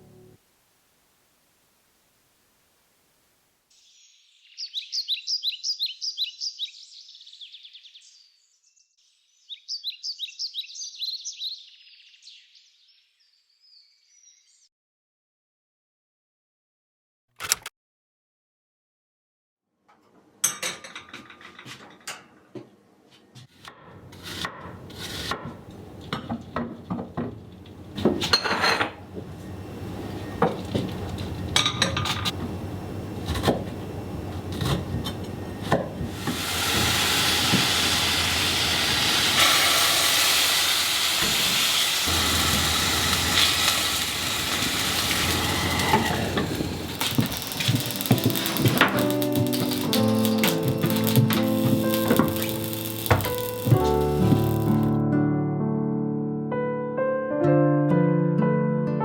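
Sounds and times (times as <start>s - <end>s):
dishes and utensils clinking: 28.0s - 29.0s, 30.4s - 32.3s
food sizzling in a pan: 36.0s - 55.0s.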